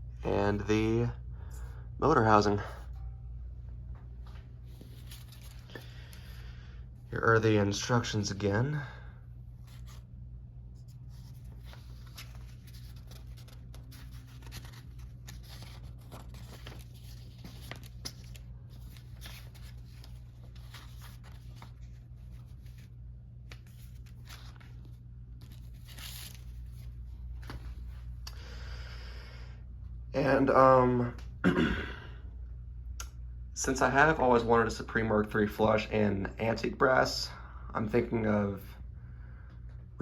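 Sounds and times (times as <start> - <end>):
steady low hum: 0.0 - 40.0
paper rustling and crinkling: 4.3 - 6.3, 9.6 - 28.1.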